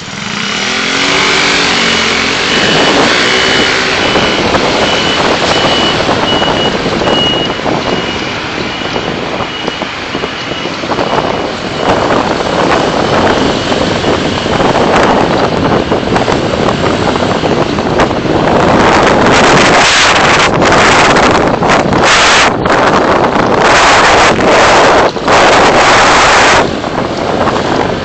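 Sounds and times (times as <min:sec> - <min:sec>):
driving road noise: 0:00.0 - 0:28.0
repeating high beep: 0:01.3 - 0:12.1.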